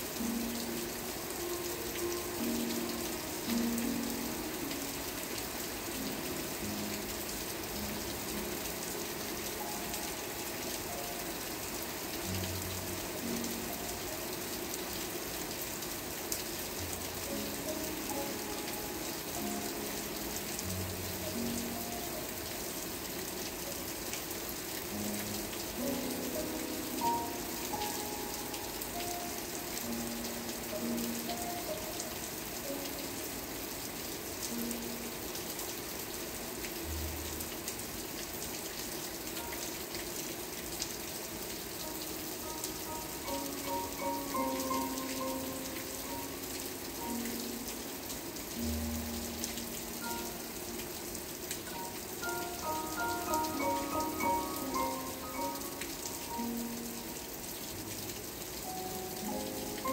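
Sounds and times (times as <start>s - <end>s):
soft slow music: 0.0s - 59.9s
steady rain patter: 0.0s - 59.9s.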